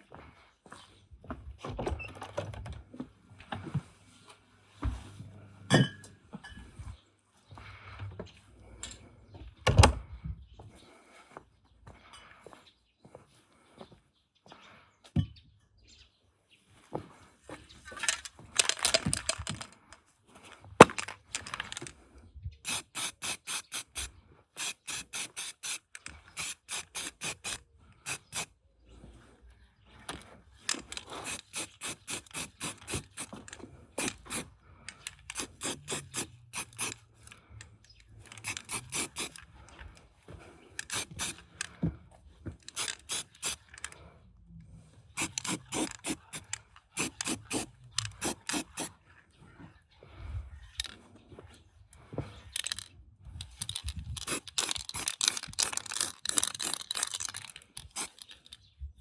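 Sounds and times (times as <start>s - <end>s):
hand tool rapid clicking: 18.2s - 19.7s, 22.7s - 28.5s, 30.7s - 37.0s, 38.3s - 39.4s, 40.8s - 41.7s, 42.6s - 43.9s, 45.2s - 48.9s, 53.6s - 58.3s.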